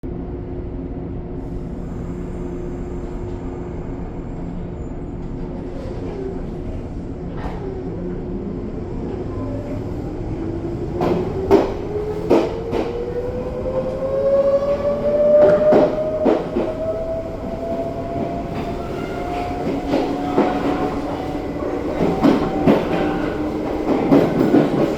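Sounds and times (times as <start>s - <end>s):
train wheels knocking on rail joints: 11.0s - 13.0s, 21.9s - 24.9s.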